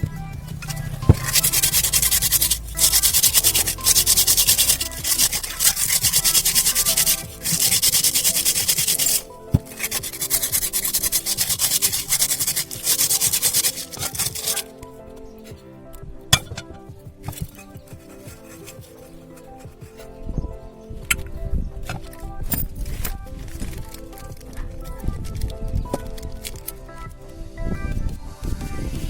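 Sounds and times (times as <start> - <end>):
background music: 0.0 - 29.0
rapid rubbing strokes: 0.5 - 14.7.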